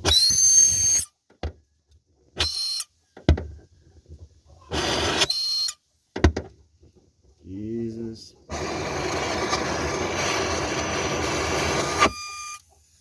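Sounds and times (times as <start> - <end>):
welder arc buzzing: 8.5 - 12.6.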